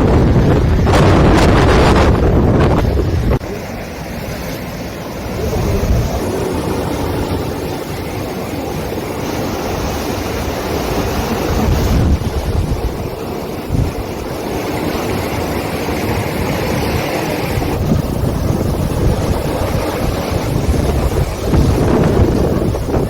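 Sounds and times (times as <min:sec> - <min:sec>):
waves washing against rocks: 0:00.0 - 0:23.0
wind buffeting microphone: 0:00.0 - 0:23.0.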